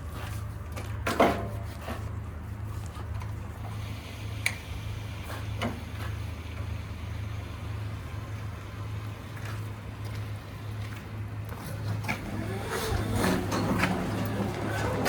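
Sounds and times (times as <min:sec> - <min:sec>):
diesel truck engine humming: 0:03.4 - 0:15.0.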